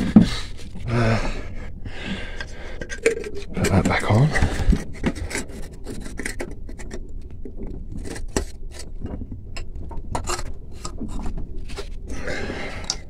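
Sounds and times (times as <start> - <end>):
hands fitting a filler cap: 2.4 - 7.0.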